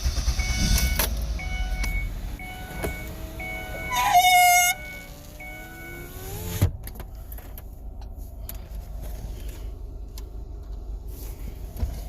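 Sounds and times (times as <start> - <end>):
dashboard warning chime dinging: 0.3 - 6.2
short loud tone: 2.5 - 6.0.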